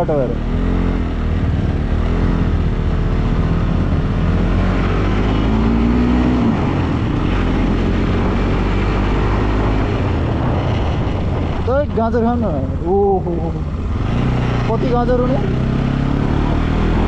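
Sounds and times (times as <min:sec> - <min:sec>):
motorcycle engine running: 0:00.0 - 0:17.0
road noise: 0:00.0 - 0:17.0
wind noise on microphone: 0:00.9 - 0:11.9.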